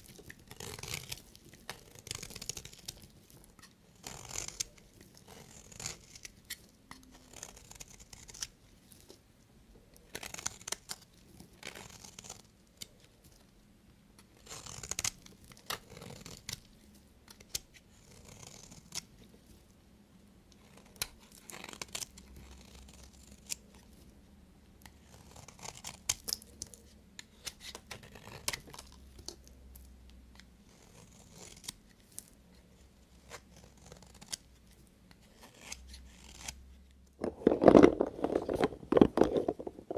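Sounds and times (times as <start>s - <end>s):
knife cutting soap: 0.0s - 9.1s, 24.9s - 29.5s, 35.1s - 36.6s.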